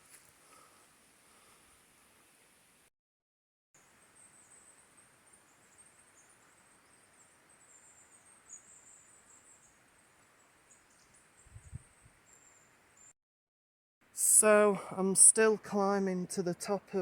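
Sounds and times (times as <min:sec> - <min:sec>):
faint hiss: 0:00.0 - 0:02.9
small birds twittering: 0:04.1 - 0:13.1.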